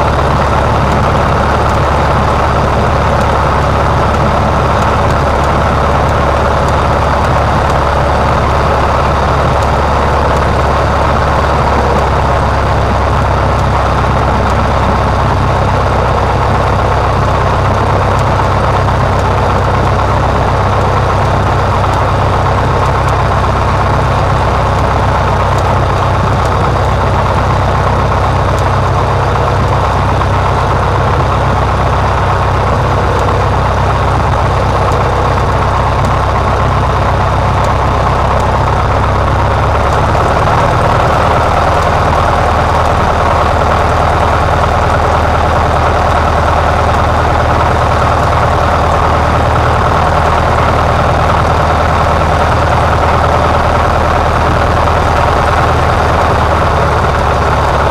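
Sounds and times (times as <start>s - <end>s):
small plane engine and propeller drone: 0.0s - 57.9s.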